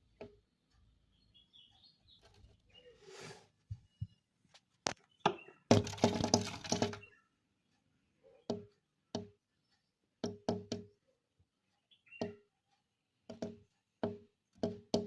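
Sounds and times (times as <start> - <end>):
bird pecking on glass window: 5.3 - 7.1, 13.3 - 15.0.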